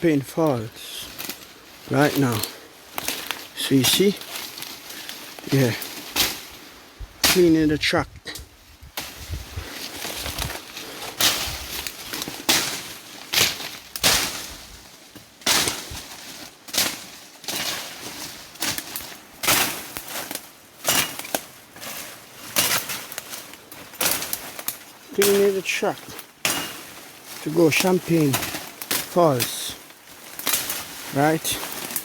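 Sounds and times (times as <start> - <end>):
machete chopping through brush: 5.5 - 6.6, 7.2 - 7.6, 10.0 - 14.7, 15.4 - 32.0.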